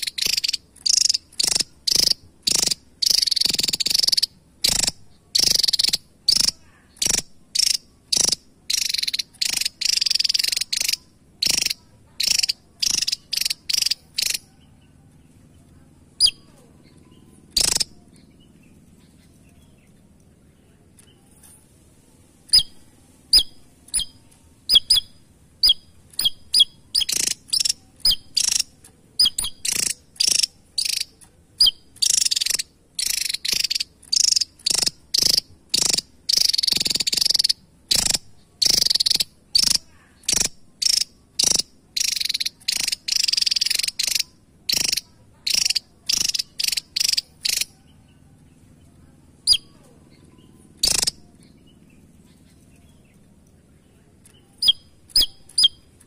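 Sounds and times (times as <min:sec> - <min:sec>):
bird calling harsh high bursts: 0:00.0 - 0:14.5, 0:17.5 - 0:18.0, 0:22.5 - 0:47.8, 0:50.8 - 0:51.2, 0:54.6 - 0:56.0.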